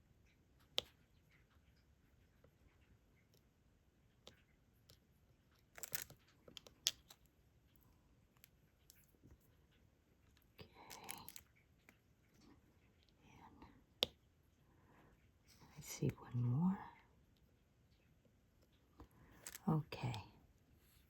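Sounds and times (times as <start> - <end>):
plastic beads clicking and rattling: 5.5 - 7.3, 10.8 - 11.4, 19.3 - 19.7.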